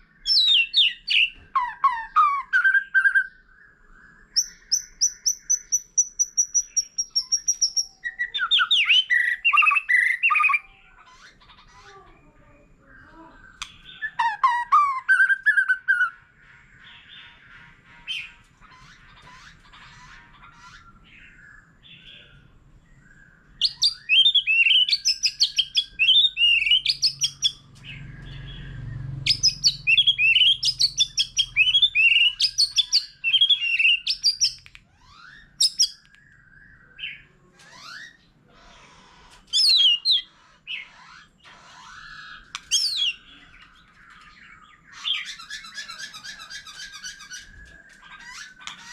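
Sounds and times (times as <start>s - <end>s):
bird singing whistled notes: 0.0s - 10.8s, 13.0s - 16.2s, 20.8s - 38.2s, 39.5s - 40.8s, 42.0s - 48.7s.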